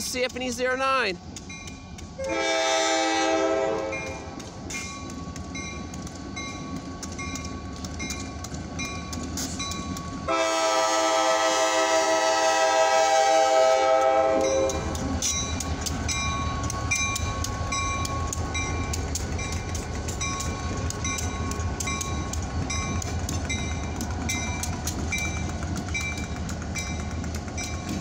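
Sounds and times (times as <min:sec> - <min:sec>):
locomotive engines rumbling past: 0:00.0 - 0:28.0
locomotive horn: 0:02.2 - 0:04.3, 0:10.3 - 0:14.9
crossing bell ringing: 0:03.9 - 0:10.5, 0:14.3 - 0:28.0.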